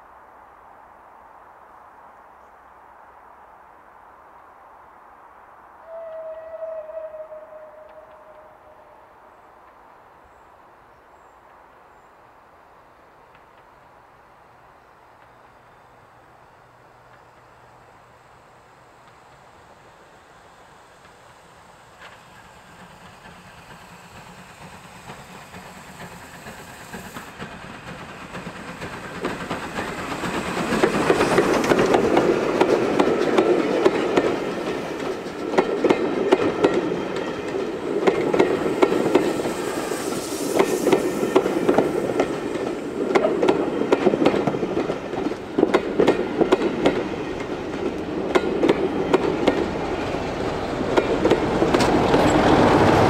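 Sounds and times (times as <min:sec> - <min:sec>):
diesel locomotive passing: 0:05.8 - 0:10.7, 0:12.9 - 0:53.0
train passing: 0:05.8 - 0:53.0
train wheels clacking over joints: 0:21.9 - 0:53.0.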